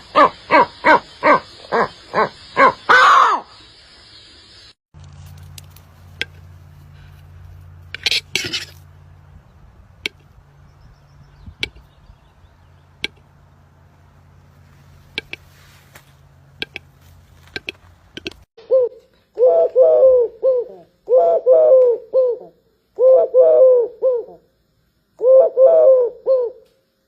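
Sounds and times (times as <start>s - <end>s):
birds clicking and tapping: 5.0s - 6.8s, 9.9s - 10.5s, 11.4s - 18.5s
low steady hum: 5.0s - 27.0s.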